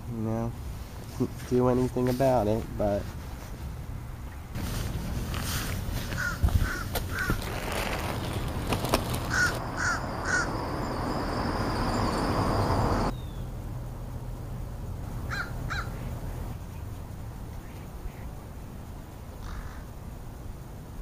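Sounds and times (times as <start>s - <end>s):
crows cawing: 6.0s - 7.5s, 9.2s - 10.6s, 15.3s - 16.0s, 19.4s - 19.9s.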